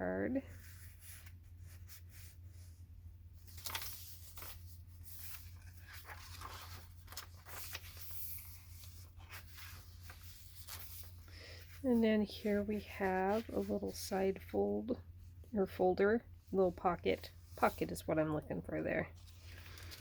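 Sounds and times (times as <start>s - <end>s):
low electrical hum: 0.0s - 20.0s
paper pages rustling: 3.4s - 11.8s, 12.4s - 14.1s, 19.1s - 20.0s.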